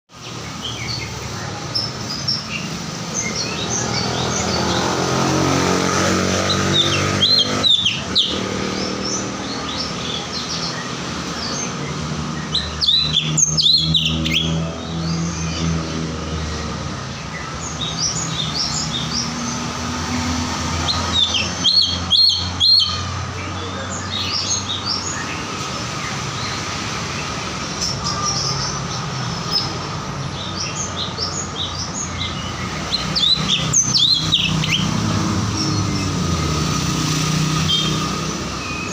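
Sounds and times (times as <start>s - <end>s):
songbird chirping and whistling: 20.9s - 23.0s.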